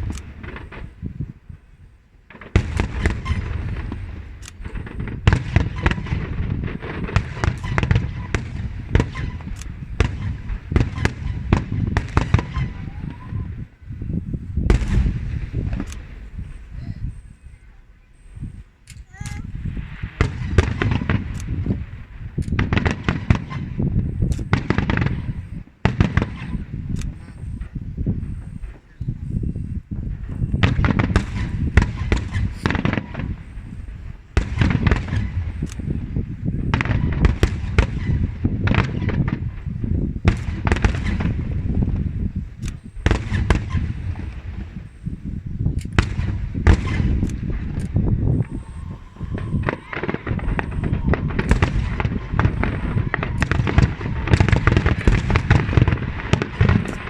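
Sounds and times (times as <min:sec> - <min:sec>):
fireworks bursting: 0:00.0 - 0:57.0
deep rumble of echoes: 0:19.4 - 0:57.0.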